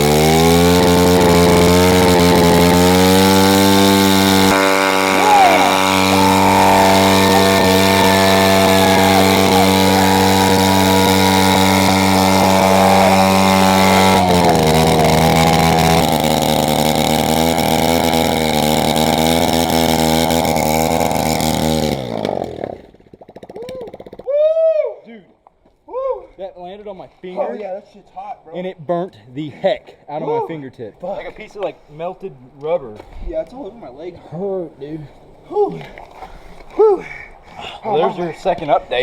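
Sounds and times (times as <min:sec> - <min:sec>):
pit bike engine at high revs: 0:00.0 - 0:22.9.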